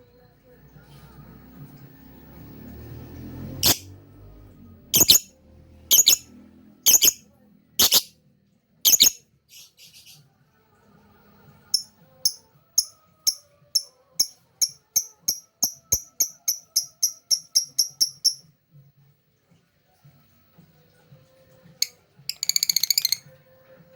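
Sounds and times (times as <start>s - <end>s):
lovebird chirping: 3.6s - 3.9s, 5.0s - 5.3s, 5.9s - 6.3s, 6.9s - 7.2s, 7.8s - 8.1s, 8.9s - 9.2s, 22.3s - 23.2s.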